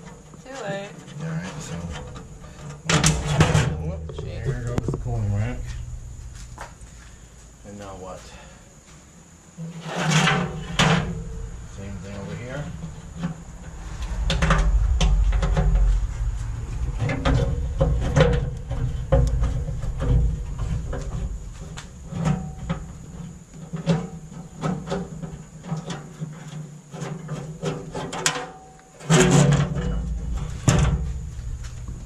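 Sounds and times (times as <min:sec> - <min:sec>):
metal grill parts clanking: 0:01.5 - 0:05.2
low rumble: 0:01.5 - 0:07.7, 0:11.0 - 0:23.0, 0:30.1 - 0:32.0.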